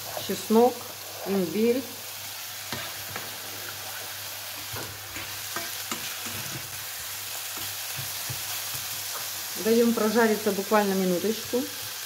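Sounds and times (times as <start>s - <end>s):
food sizzling in a frying pan: 0.0s - 12.0s
spatula clicking and scraping: 4.6s - 9.3s.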